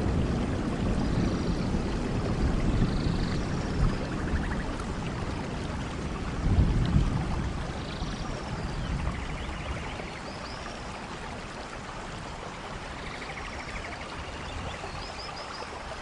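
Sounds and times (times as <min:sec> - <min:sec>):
low thunder rumble: 0:00.0 - 0:10.0
steady rain: 0:00.0 - 0:16.0.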